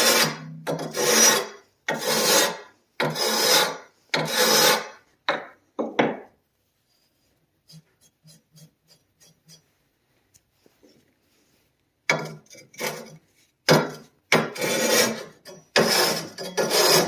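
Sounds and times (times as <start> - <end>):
sharpening stone rasping on metal: 0.0 - 5.0, 7.6 - 9.8, 12.1 - 13.3, 13.9 - 17.0.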